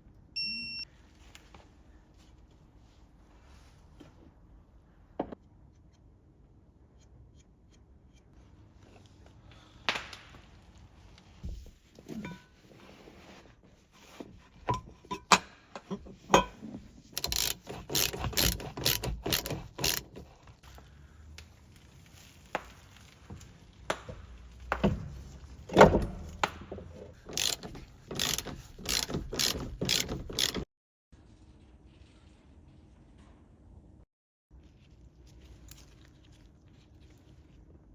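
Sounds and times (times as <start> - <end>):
metal knocking on metal: 14.6 - 20.2
ratchet wrench clicking: 17.2 - 20.3, 27.3 - 30.6.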